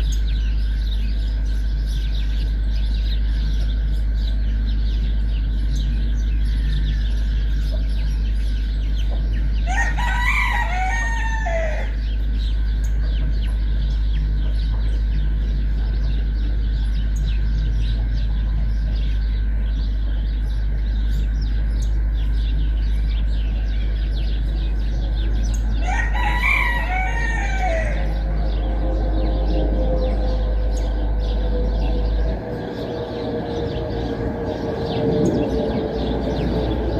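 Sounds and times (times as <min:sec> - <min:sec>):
steady low hum: 0:00.0 - 0:36.9
rooster crowing: 0:09.6 - 0:12.0, 0:25.6 - 0:29.0.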